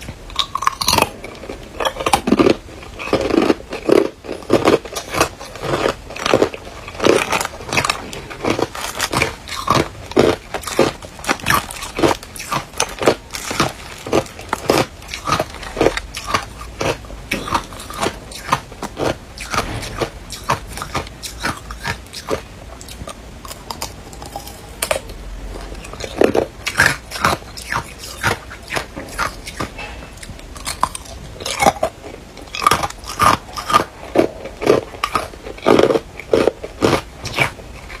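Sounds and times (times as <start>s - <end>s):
person chewing ice crunching: 0.0s - 38.0s.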